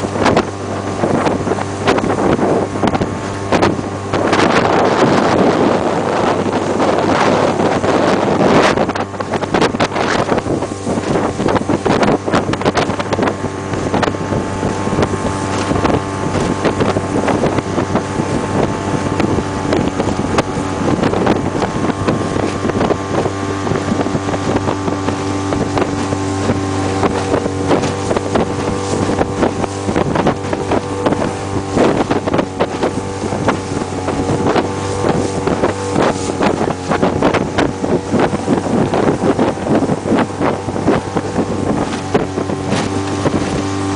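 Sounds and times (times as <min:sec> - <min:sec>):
outboard motor running: 0:00.0 - 0:43.9
wind buffeting microphone: 0:00.0 - 0:43.9.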